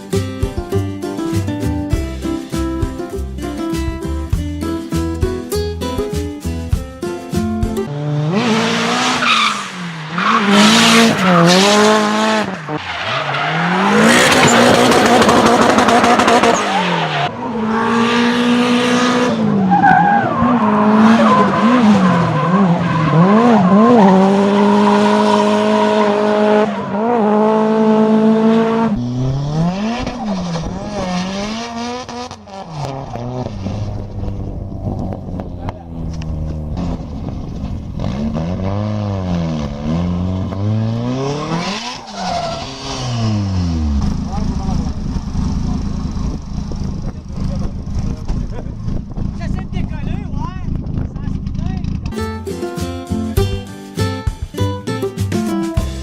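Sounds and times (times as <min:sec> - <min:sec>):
car engine revving hard: 0:07.9 - 0:49.3
tires squealing and skidding: 0:08.0 - 0:28.0, 0:28.9 - 0:35.1, 0:39.5 - 0:44.3.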